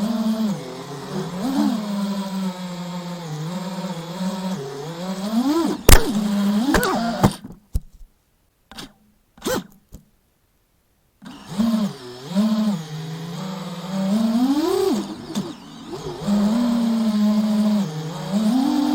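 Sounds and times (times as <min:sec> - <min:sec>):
quadcopter motors whining: 0:00.0 - 0:06.8, 0:11.2 - 0:18.9
short clicks: 0:05.9 - 0:06.9
sharp crack: 0:05.9 - 0:07.1.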